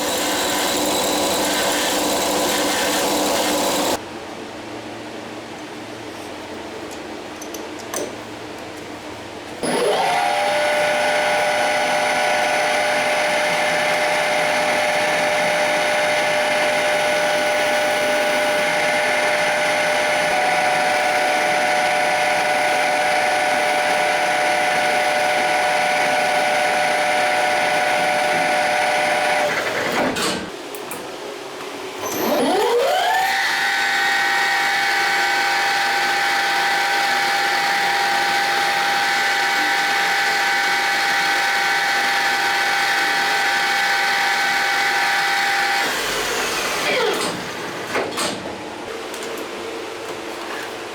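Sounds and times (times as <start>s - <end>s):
power tool motor whine: 0.0s - 4.0s, 9.6s - 30.2s, 32.0s - 47.9s.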